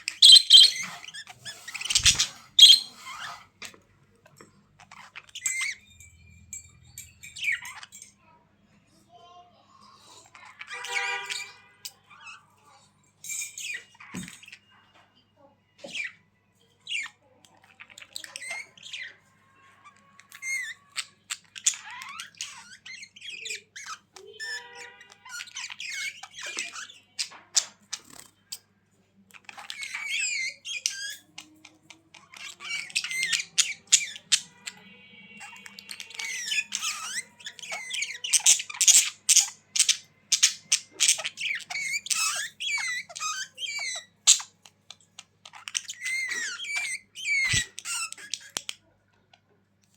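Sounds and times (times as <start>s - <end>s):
budgerigars chattering: 0.0s - 3.4s, 32.2s - 34.8s, 35.4s - 44.6s, 45.4s - 48.7s.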